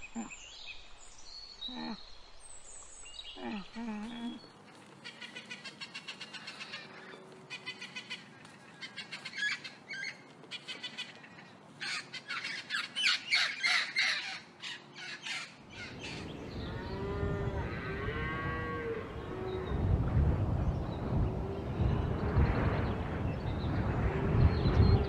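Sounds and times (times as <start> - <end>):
macaws squawking: 5.0 - 16.3
low rumble: 15.9 - 25.0.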